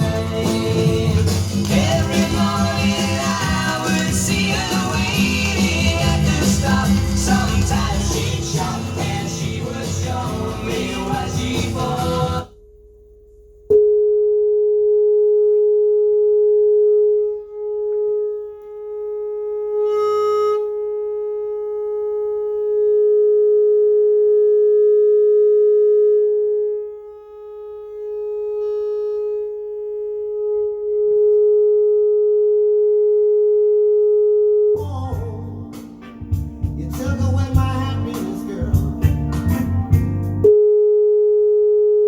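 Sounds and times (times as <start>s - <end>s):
steady test tone: 0.0s - 32.7s.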